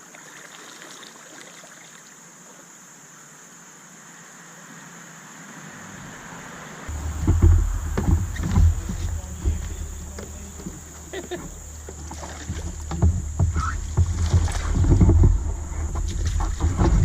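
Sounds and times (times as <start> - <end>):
river water rushing: 5.8 - 17.0
irregular knocks: 6.9 - 17.0
loud low rumbling: 6.9 - 17.0.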